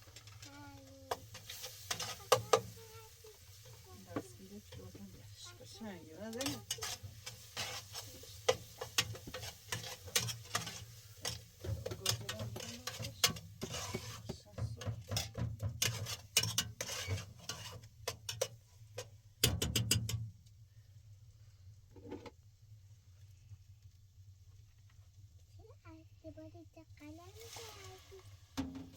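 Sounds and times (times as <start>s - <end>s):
utensils clinking against pots: 1.1s - 2.8s, 3.5s - 20.3s.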